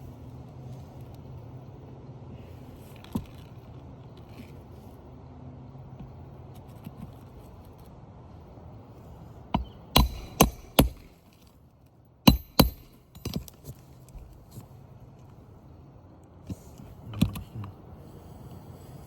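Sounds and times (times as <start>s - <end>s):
hammer clinking on metal: 9.6s - 11.1s, 12.3s - 13.6s.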